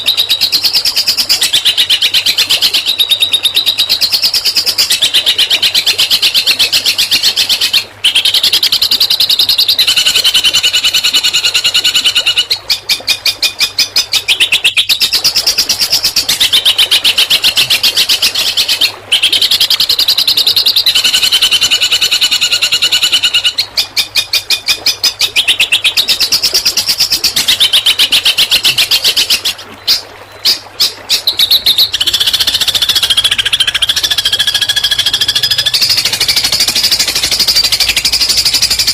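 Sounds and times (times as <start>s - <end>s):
songbird singing rapid high notes: 31.2s - 38.9s.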